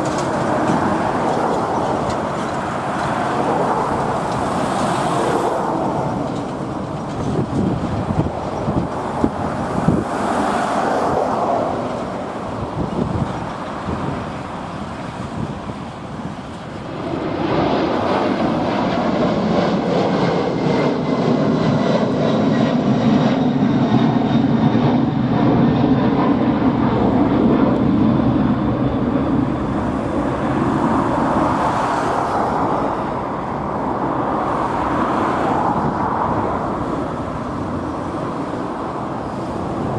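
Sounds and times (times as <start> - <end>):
gusty wind: 0.0 - 39.9
jet engines at takeoff: 0.0 - 39.9
road traffic: 0.0 - 39.9.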